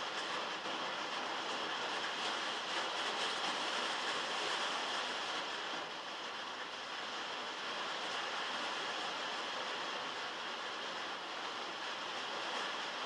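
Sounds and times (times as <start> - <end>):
heavy rain on metal roof: 0.0 - 13.0.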